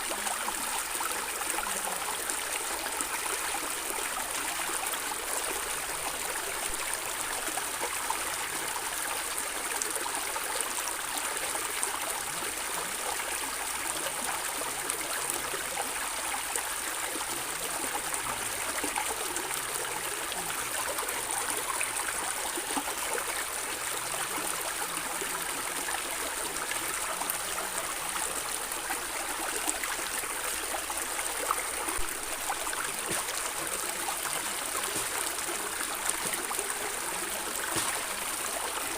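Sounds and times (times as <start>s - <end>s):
stream flowing over stones: 0.0s - 38.9s
small water splashes: 31.9s - 38.9s.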